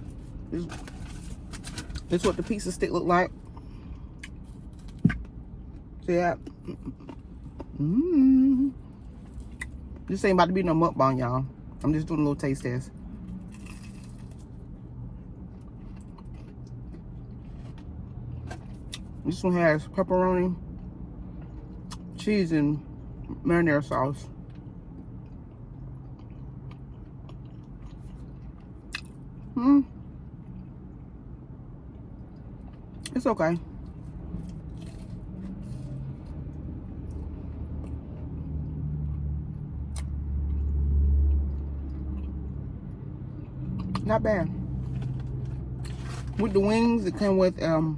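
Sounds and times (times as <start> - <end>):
motor vehicle rumble: 0.0 - 47.9
chewing with small clicks: 15.2 - 19.1, 24.5 - 29.5, 37.0 - 44.1.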